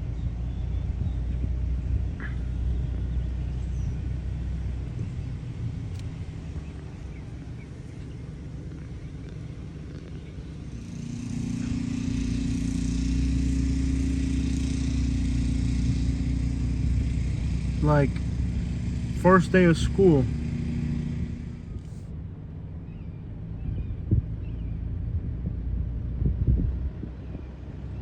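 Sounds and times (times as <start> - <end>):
motor vehicle running: 0.0 - 28.0.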